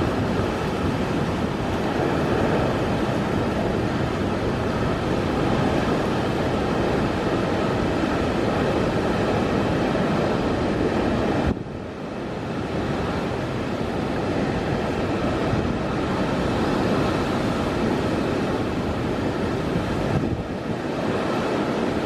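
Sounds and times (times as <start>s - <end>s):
heavy surf: 0.0s - 22.0s
wind buffeting microphone: 0.0s - 22.0s.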